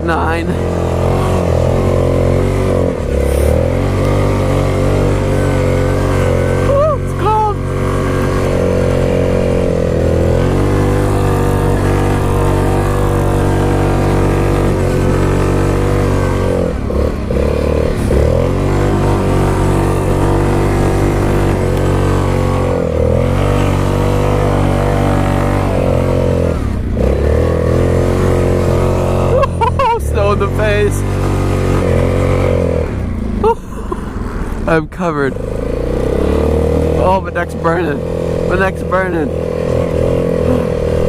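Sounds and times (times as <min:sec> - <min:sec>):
atv engine revving high: 0:00.0 - 0:41.0.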